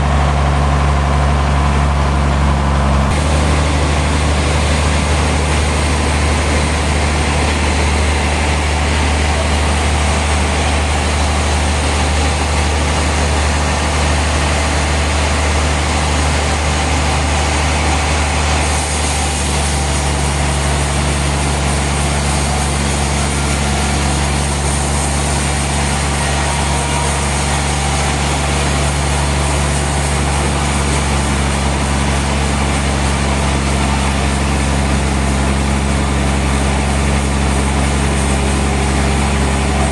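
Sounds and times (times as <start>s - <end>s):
heavy sawmill engine running: 0.0s - 39.9s.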